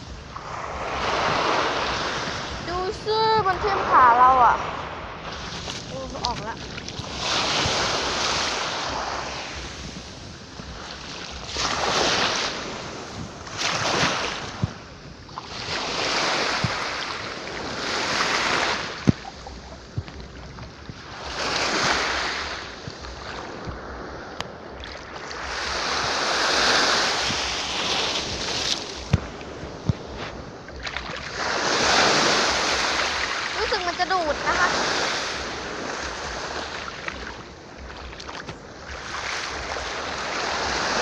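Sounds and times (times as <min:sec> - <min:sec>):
sea waves breaking: 0:00.0 - 0:41.0
wind on microphone: 0:00.0 - 0:41.0.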